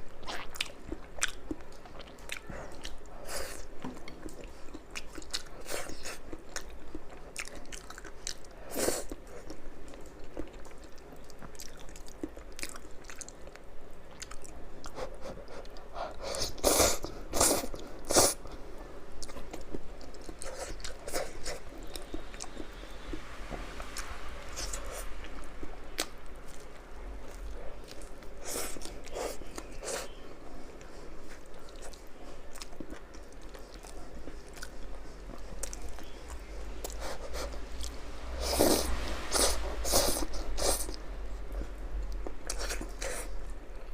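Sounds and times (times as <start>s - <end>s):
person chewing crispy food: 0.1s - 43.9s.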